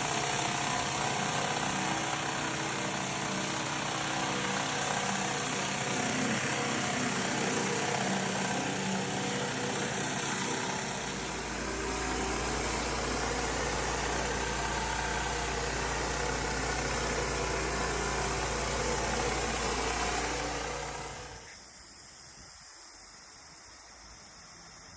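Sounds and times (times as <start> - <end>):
deep low hum: 0.0 - 21.4
small gasoline engine running: 0.0 - 21.5.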